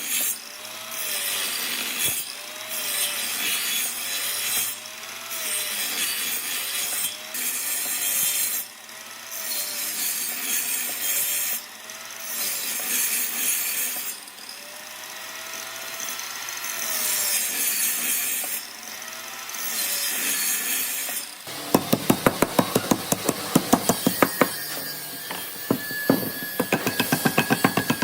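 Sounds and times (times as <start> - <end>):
hand tool rasping wood: 21.5 - 28.0
rapid sharp taps on wood: 21.5 - 28.0.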